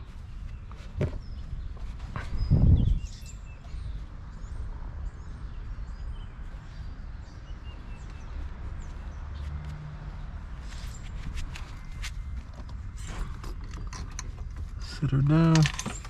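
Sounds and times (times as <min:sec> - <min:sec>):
small birds chirping: 0:00.0 - 0:16.0
dull thump: 0:01.0 - 0:01.3.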